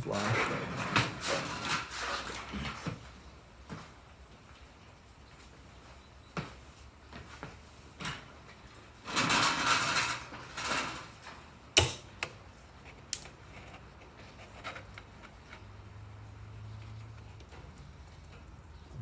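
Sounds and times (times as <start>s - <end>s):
sharp metallic knock: 11.8s - 12.1s
tools clicking and knocking: 11.8s - 12.4s.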